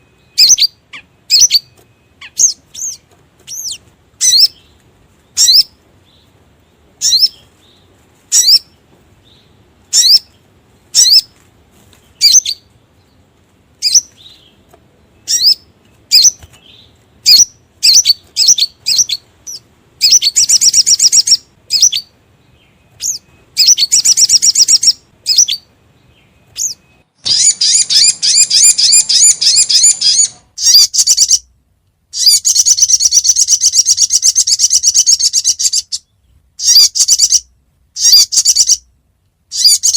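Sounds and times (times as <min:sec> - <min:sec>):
bird chirps and trills: 0:00.0 - 0:31.5, 0:32.1 - 0:38.9, 0:39.5 - 0:39.9.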